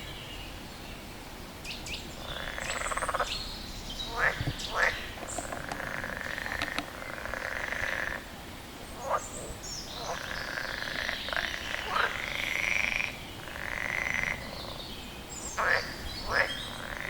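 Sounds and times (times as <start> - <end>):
frog croaking: 2.2 - 3.4, 4.0 - 8.4, 9.0 - 14.8, 15.6 - 17.0.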